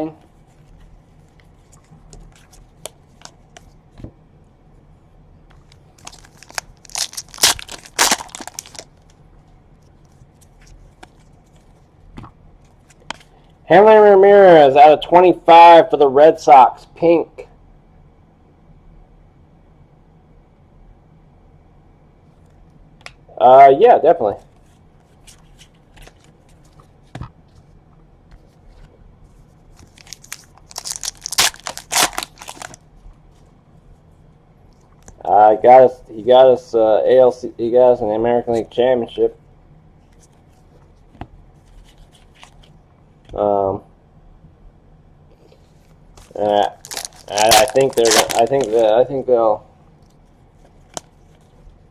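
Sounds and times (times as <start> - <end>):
wrapper tearing and crinkling: 6.0 - 9.1, 29.8 - 32.8, 46.2 - 49.1.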